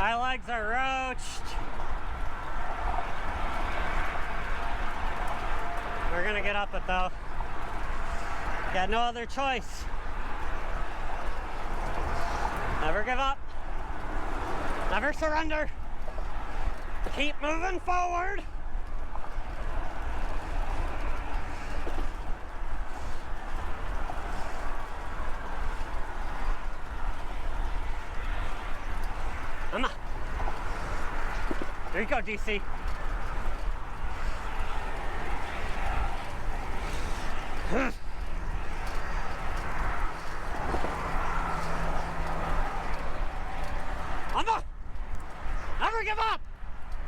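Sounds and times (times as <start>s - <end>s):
steady vehicle hum: 0.0s - 47.0s
traffic and road noise: 0.0s - 47.0s
wind rumble on microphone: 18.5s - 45.8s.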